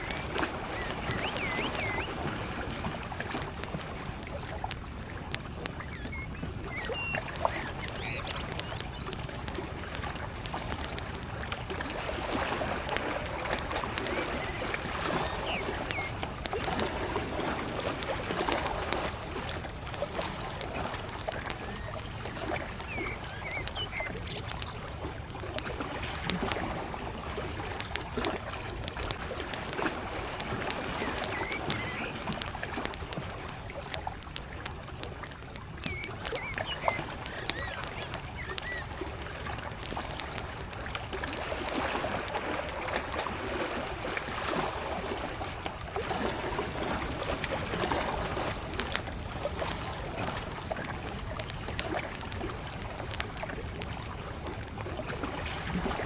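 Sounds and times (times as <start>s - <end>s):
distant bird chirps: 0.0s - 2.6s, 5.4s - 9.5s, 13.6s - 17.3s, 20.8s - 26.7s, 30.6s - 32.5s, 35.8s - 39.4s
campfire crackling: 0.0s - 56.0s
small waves lapping at shore: 0.0s - 56.0s.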